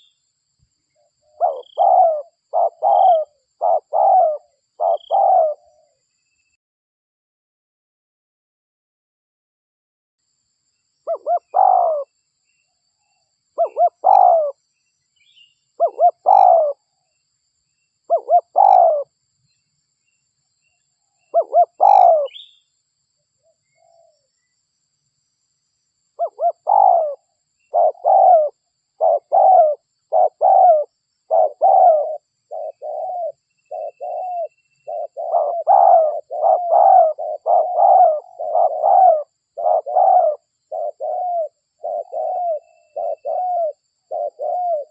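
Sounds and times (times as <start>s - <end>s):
dove cooing: 1.2s - 6.0s, 11.1s - 12.1s, 13.6s - 14.6s, 15.8s - 16.8s, 18.1s - 19.1s, 21.3s - 22.5s, 26.2s - 44.9s.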